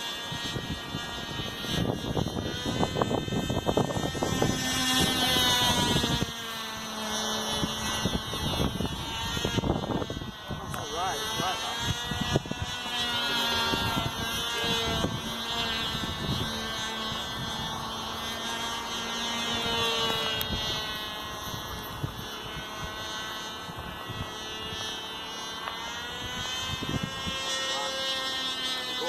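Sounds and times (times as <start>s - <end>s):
model plane engine buzzing: 0.0s - 29.0s.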